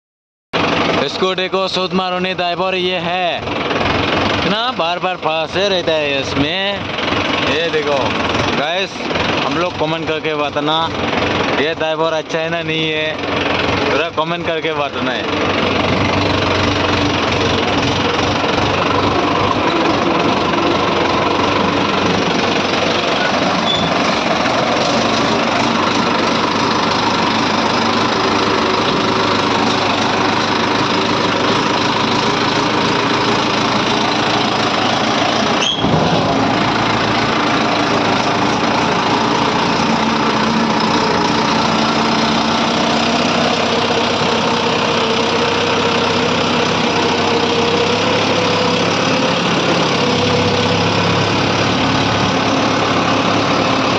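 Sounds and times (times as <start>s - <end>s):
tractor engine running loudly: 0.6s - 53.9s.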